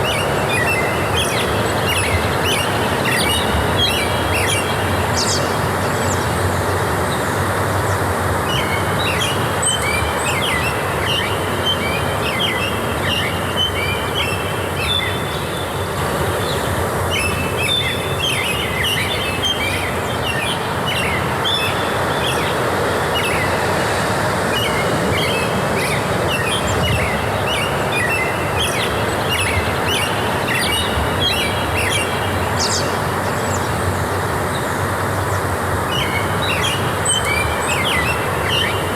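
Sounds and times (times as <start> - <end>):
small birds calling: 0.0 - 38.9
steady rushing noise: 19.9 - 37.1.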